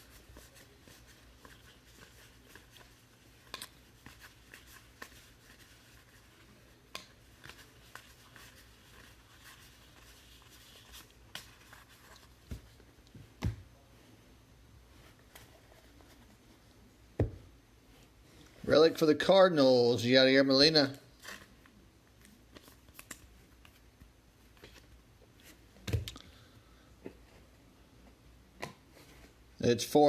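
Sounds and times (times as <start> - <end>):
cards rustling: 0.0 - 12.9, 20.8 - 25.6.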